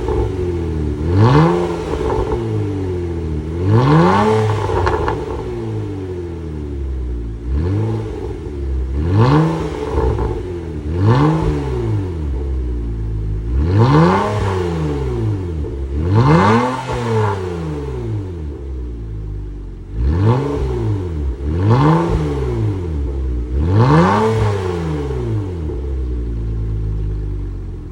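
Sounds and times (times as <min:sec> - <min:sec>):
car engine idling: 0:00.0 - 0:27.9
car engine revving: 0:00.0 - 0:27.9.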